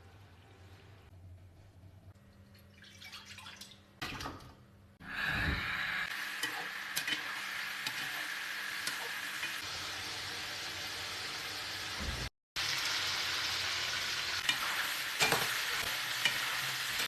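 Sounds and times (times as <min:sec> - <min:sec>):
chicken sizzling in hot oil: 0:05.9 - 0:17.0.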